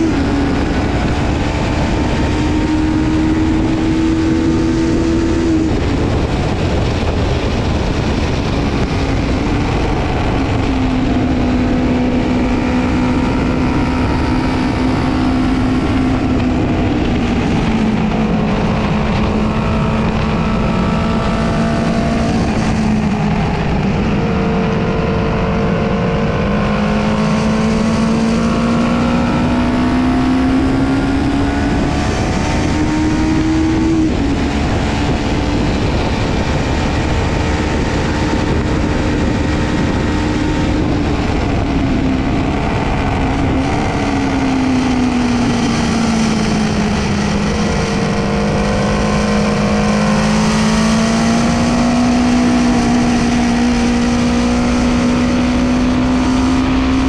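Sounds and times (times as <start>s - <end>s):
motorcycle engine running hard: 0.0s - 57.0s
wind rush: 0.0s - 57.0s.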